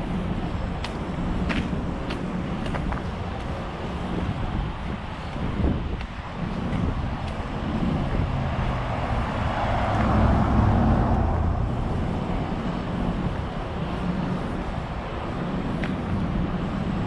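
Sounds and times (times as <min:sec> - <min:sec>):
roadway hum: 0:00.0 - 0:17.0
vehicle engine passing: 0:06.8 - 0:14.0.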